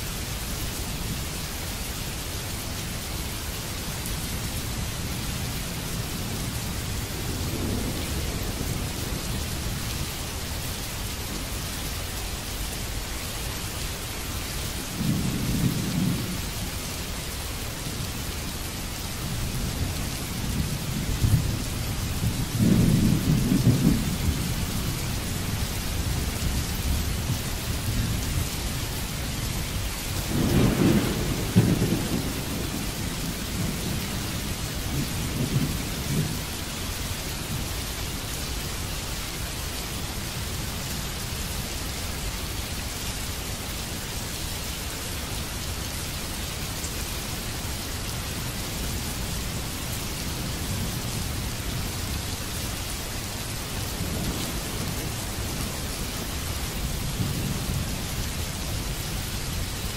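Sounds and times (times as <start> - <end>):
rain hissing: 0.0 - 59.9
thunder rumbling: 6.2 - 9.8, 19.3 - 37.1.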